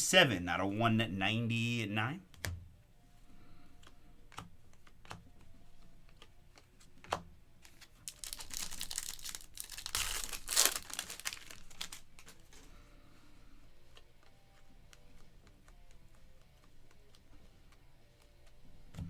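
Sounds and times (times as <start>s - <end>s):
cards tapping: 3.8s - 12.5s
foil wrapper tearing and crinkling: 7.6s - 12.5s.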